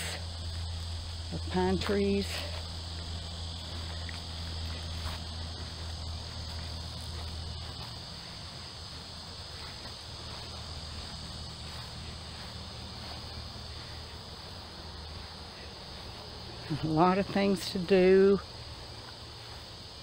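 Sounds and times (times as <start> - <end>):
low steady hum: 0.0 - 19.6
insects buzzing: 0.0 - 20.0.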